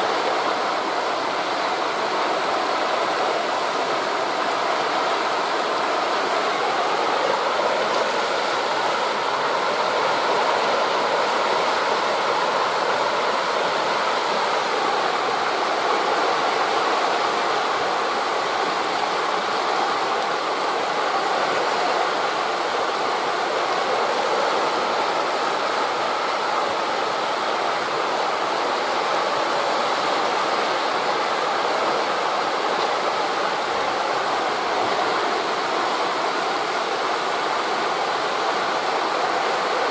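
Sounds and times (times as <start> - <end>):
distant surf: 0.0 - 39.9
wind through forest leaves: 0.0 - 39.9.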